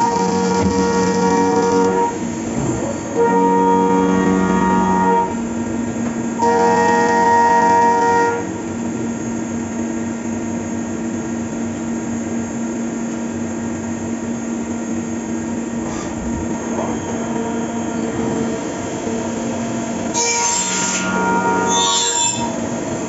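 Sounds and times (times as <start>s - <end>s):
high machine whine: 0.0s - 23.0s
milling machine humming: 0.0s - 23.0s.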